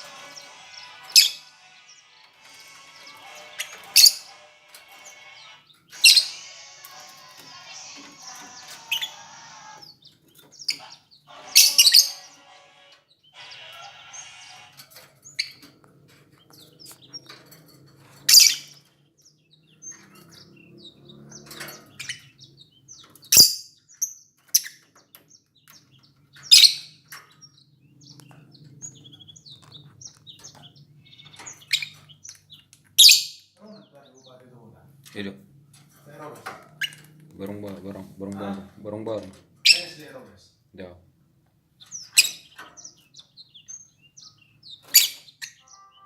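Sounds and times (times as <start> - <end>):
shrill bird calls: 0.0 - 15.7, 28.8 - 33.6, 41.9 - 46.0.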